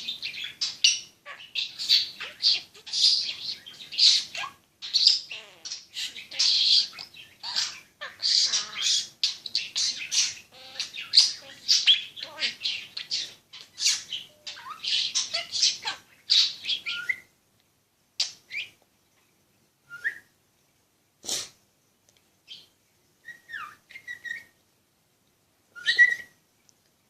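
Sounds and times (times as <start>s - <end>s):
parrot chattering and squawking: 0.0s - 17.3s
parrot whistles: 25.8s - 26.4s.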